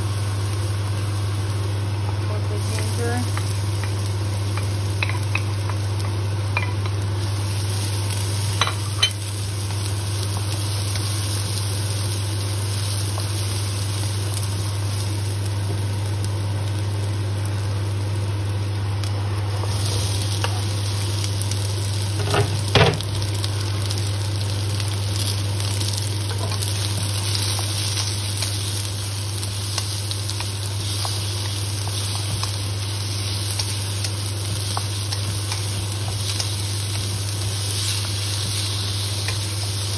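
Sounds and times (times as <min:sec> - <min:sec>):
garlic sizzling in hot oil: 0:00.0 - 0:39.9.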